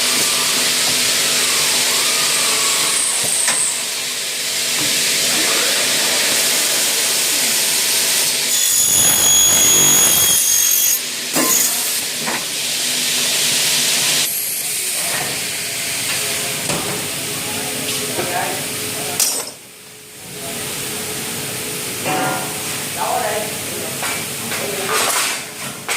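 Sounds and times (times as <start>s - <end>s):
machine cutting hiss: 0.0s - 16.1s
high-pitched whine: 5.3s - 12.0s.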